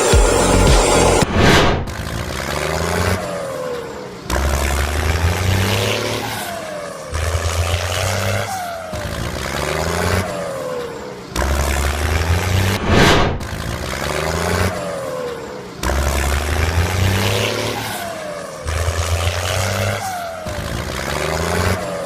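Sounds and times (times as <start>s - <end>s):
falling whine: 0.0s - 1.8s.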